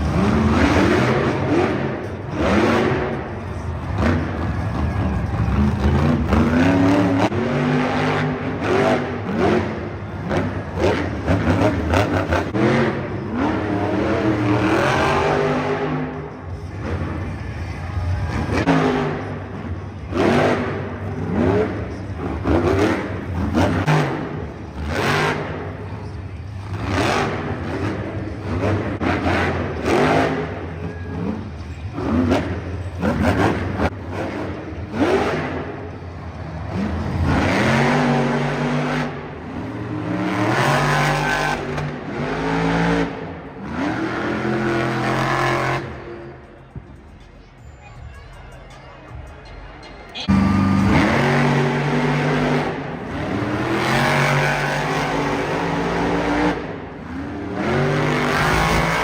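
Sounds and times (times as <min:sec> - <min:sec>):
truck engine revving hard: 0:00.0 - 0:17.4, 0:18.0 - 0:25.8, 0:26.6 - 0:46.4, 0:50.2 - 0:59.0.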